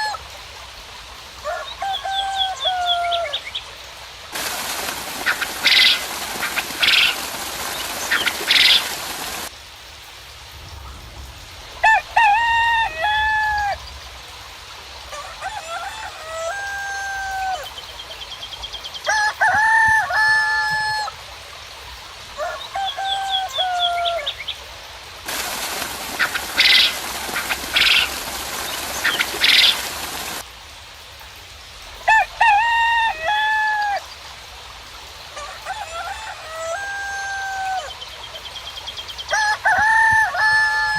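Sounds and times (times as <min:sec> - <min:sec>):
roosters crowing: 0:00.0 - 0:00.2, 0:01.4 - 0:03.4, 0:11.8 - 0:13.9, 0:15.1 - 0:17.8, 0:19.0 - 0:21.2, 0:22.3 - 0:24.4, 0:25.3 - 0:30.4, 0:32.0 - 0:34.0, 0:35.4 - 0:38.0, 0:39.2 - 0:40.9
rain-like hiss: 0:00.0 - 0:40.9
small birds chirping: 0:02.4 - 0:09.5, 0:25.3 - 0:30.4
loud pulses of calling: 0:25.3 - 0:30.4.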